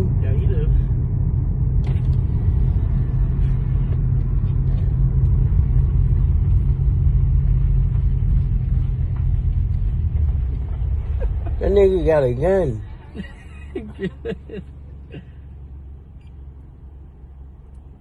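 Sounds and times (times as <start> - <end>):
car cabin road and engine noise: 0.0 - 18.0.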